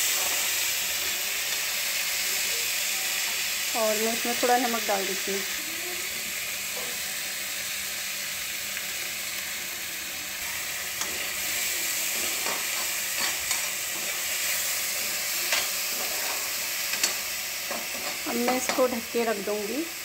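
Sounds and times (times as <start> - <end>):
masala sizzling in oil: 0.0 - 20.0
spatula scraping and tapping pan: 12.1 - 14.2, 15.5 - 18.9.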